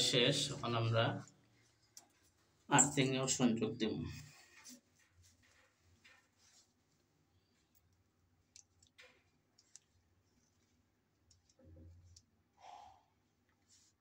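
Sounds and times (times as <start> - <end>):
clicks and rustles of wires: 1.2 - 2.7, 4.1 - 12.4.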